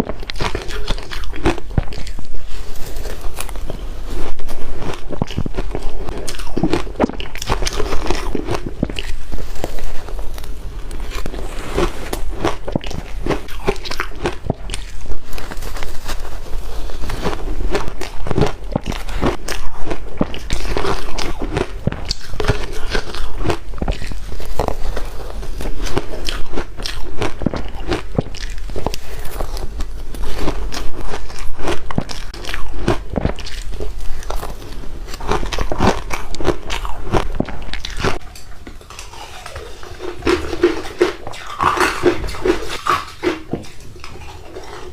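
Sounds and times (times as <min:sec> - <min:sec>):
person crunching ice: 0:00.0 - 0:38.2, 0:38.8 - 0:44.9.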